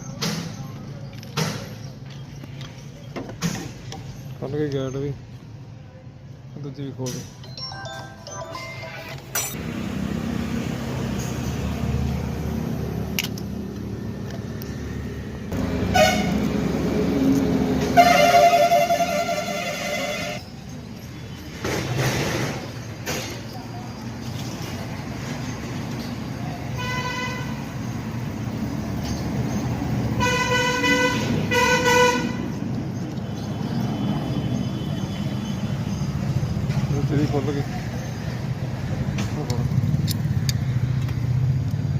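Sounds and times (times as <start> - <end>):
low rumble of traffic: 0.0 - 41.9
vehicle engine running: 9.6 - 18.0
vehicle horn honking: 15.8 - 16.5, 17.9 - 20.4, 26.8 - 27.6, 30.2 - 32.5.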